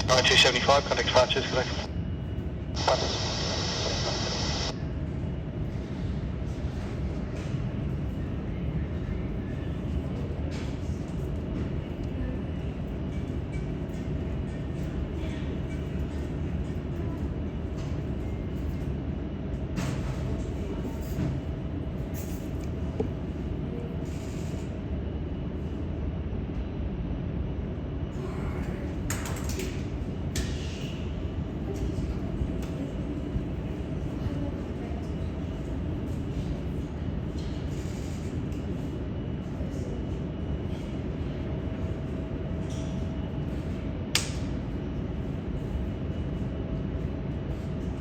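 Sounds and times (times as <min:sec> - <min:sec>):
jet engines rumbling: 0:00.0 - 0:02.0, 0:02.7 - 0:04.8.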